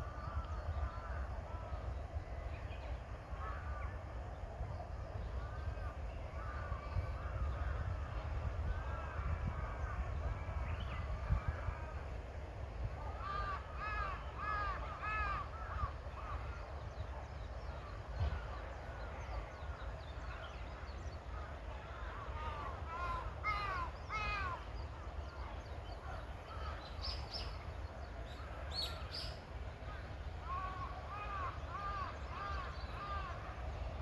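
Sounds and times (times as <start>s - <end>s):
crows cawing: 13.1s - 16.0s, 22.2s - 24.6s.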